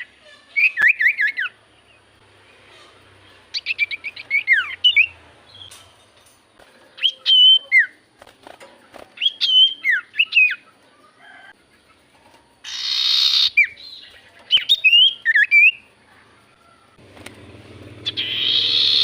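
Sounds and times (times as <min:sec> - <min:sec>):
bird whistling song: 0:00.0 - 0:01.6, 0:03.5 - 0:05.7, 0:07.0 - 0:08.0, 0:09.2 - 0:10.6, 0:12.6 - 0:15.9, 0:18.0 - 0:19.0.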